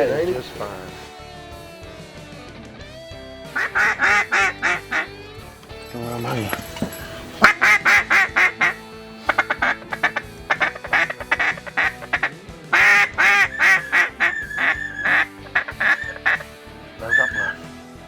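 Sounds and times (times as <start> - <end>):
duck quacking: 3.4 - 5.2, 7.4 - 17.7
high-pitched duck call: 3.5 - 5.1, 7.4 - 17.6.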